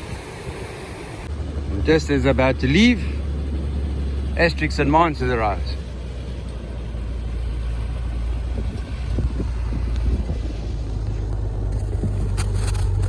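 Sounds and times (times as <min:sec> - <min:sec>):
outboard motors rumbling: 0:00.0 - 0:13.0.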